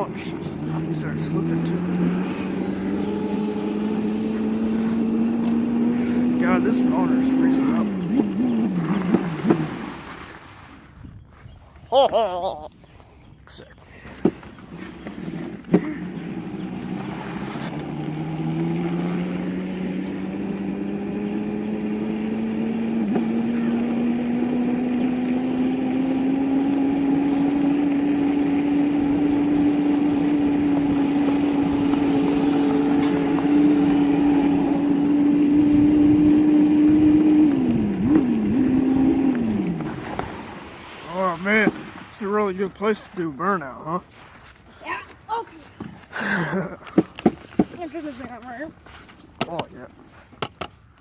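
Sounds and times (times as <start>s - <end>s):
mini dirt bike engine revving: 0.0s - 10.4s, 14.7s - 41.9s.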